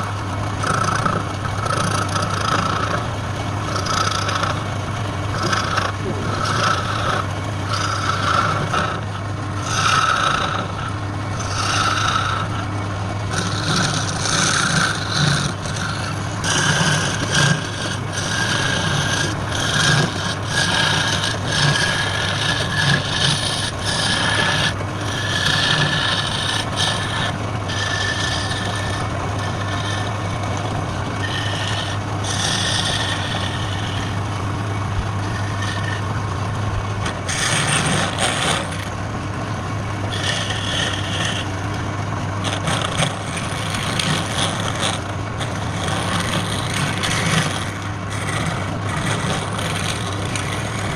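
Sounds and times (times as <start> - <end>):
tool scraping spinning wood: 0.0 - 50.9
wood lathe motor hum: 0.0 - 50.9.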